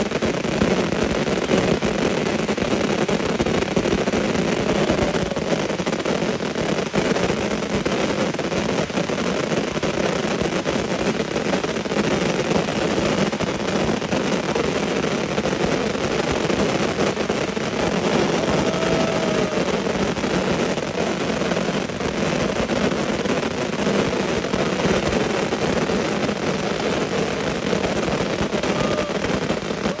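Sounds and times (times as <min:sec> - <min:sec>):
fireworks crackling bangs: 0:00.0 - 0:30.0
firework whistles: 0:02.7 - 0:08.9, 0:12.7 - 0:30.0.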